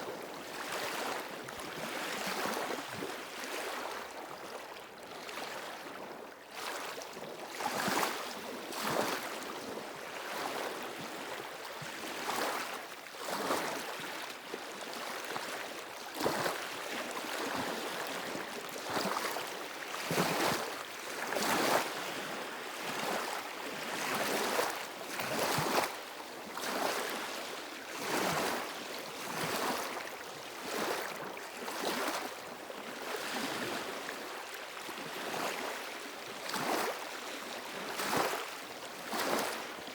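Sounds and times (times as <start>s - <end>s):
small waves washing on stony shore: 0.1s - 39.9s.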